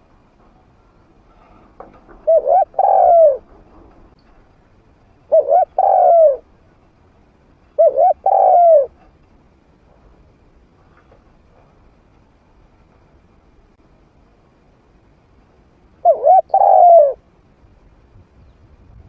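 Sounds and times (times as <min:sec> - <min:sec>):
dove cooing: 0:02.0 - 0:04.1, 0:05.3 - 0:06.5, 0:07.8 - 0:09.0, 0:16.0 - 0:17.2.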